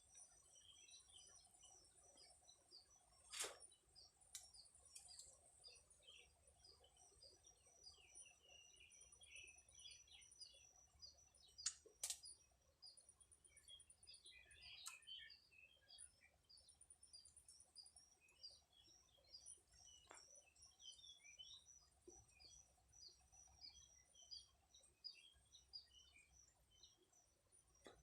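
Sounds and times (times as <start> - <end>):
faint birds chirping: 0.0 - 28.0
soft clicks: 11.6 - 12.3.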